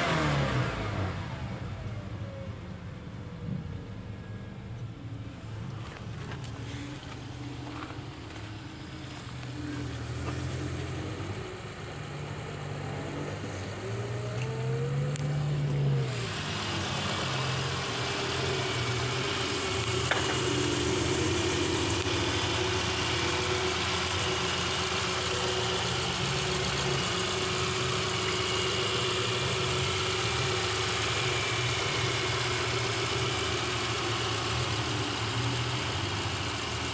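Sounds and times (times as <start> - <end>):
car engine idling: 1.8 - 36.9.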